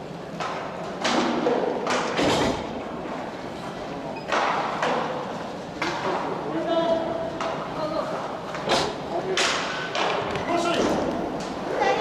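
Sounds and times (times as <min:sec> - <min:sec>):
hockey puck and sticks knocking: 0:00.3 - 0:02.6, 0:04.3 - 0:06.4, 0:07.4 - 0:07.7, 0:08.5 - 0:11.6.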